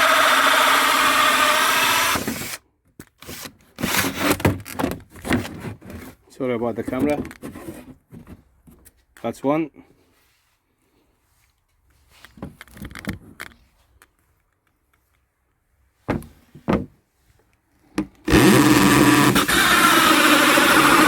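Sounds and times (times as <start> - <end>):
electric drill drilling wood: 0.0 - 2.6, 18.3 - 21.0
wood knocking and clattering: 16.1 - 17.0.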